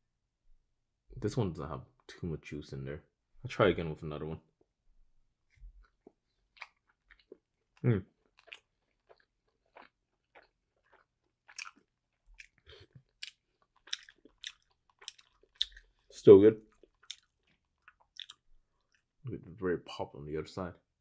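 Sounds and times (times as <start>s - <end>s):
chewing dumpling wet smacks: 5.5s - 19.1s.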